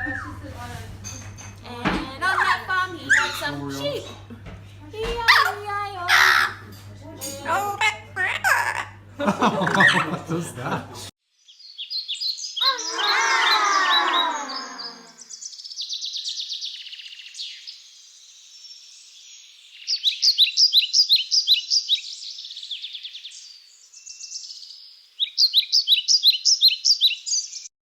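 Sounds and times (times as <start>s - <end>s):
small birds chirping: 2.2s - 3.8s, 11.3s - 27.7s.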